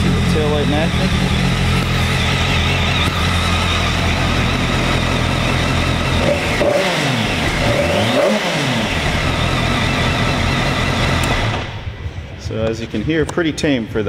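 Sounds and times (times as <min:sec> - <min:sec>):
motorcycle engine idling: 0:00.0 - 0:06.6, 0:08.7 - 0:11.6
engine throttle blips: 0:00.0 - 0:13.4.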